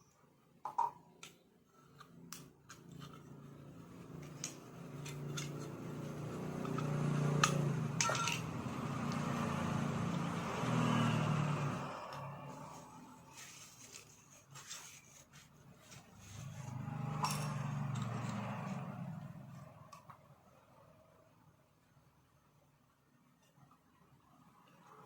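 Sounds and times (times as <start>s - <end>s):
machine humming: 5.3s - 13.2s.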